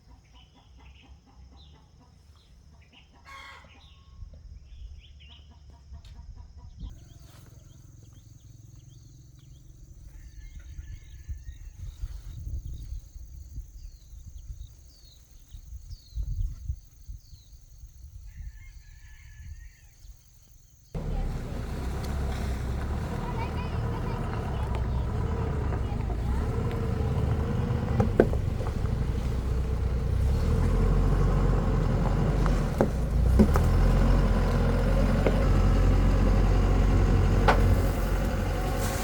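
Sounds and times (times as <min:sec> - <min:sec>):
small birds chirping: 0:06.7 - 0:18.0, 0:20.0 - 0:38.9
rooster crowing: 0:18.3 - 0:20.0
chickens clucking: 0:21.0 - 0:39.0.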